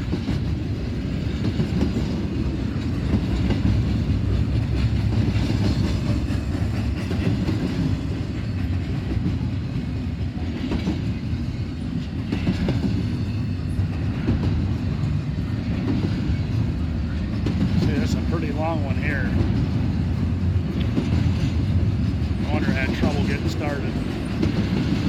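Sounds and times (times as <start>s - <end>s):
freight train rumbling past: 0.0s - 25.0s
wheels clicking over rail joints: 0.0s - 25.0s.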